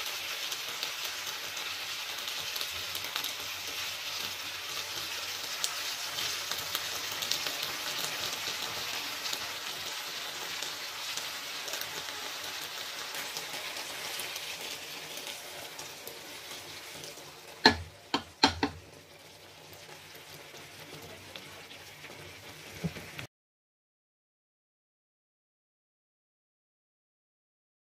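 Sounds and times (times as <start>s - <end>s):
vegetables sizzling in frying pan: 0.0s - 23.3s
sharp knocks: 17.7s - 18.8s.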